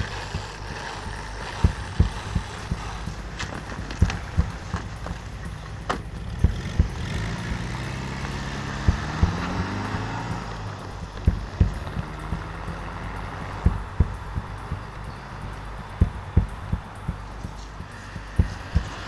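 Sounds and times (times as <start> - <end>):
footsteps on pavement: 0.0 - 7.7, 8.5 - 10.2, 10.9 - 15.1, 15.8 - 19.0
car engine accelerating away: 0.0 - 19.0
low steady hum: 0.0 - 19.0.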